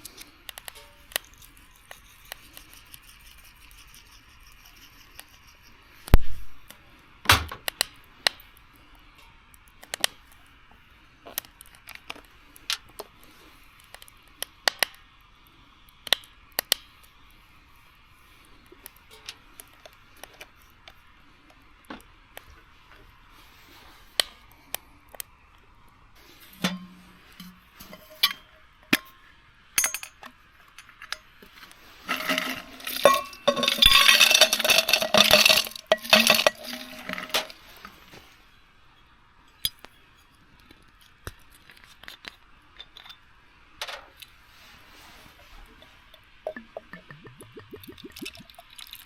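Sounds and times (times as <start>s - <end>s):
rattling and rustling: 32.0s - 37.9s
cookware clinking and knocking: 32.1s - 37.4s.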